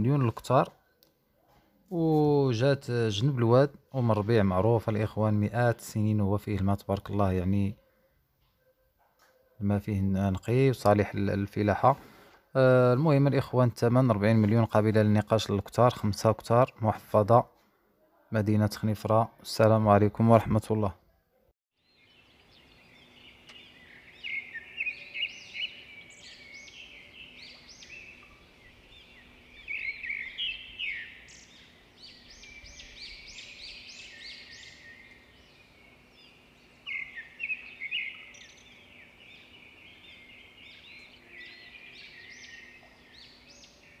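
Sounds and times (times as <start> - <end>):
small birds chirping: 21.8 - 44.0.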